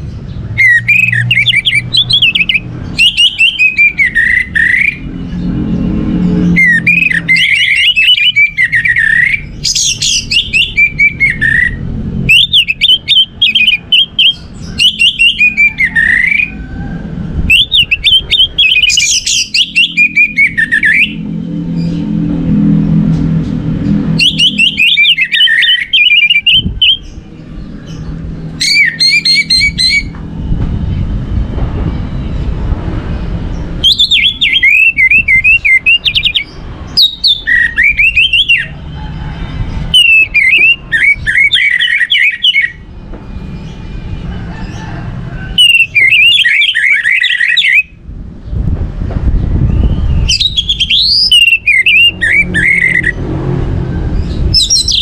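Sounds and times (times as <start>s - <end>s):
thrush singing: 0.0s - 30.6s, 50.0s - 55.0s.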